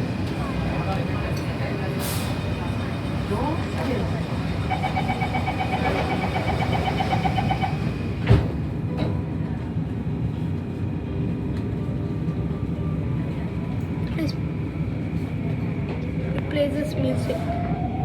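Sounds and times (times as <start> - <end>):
train interior hum: 0.0 - 18.0
train doors shutting: 3.6 - 9.2
rapid door warning beeping: 4.7 - 7.9.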